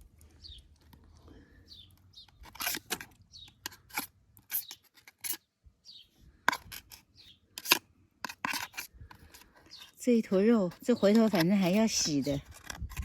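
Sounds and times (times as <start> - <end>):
clam shells clicking and scraping: 1.9 - 5.5, 6.4 - 13.0.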